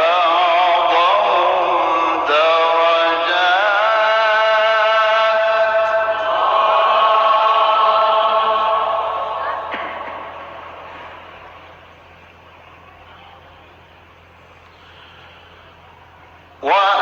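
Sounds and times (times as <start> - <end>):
man reciting melodically: 0.0 - 9.7, 16.6 - 17.0.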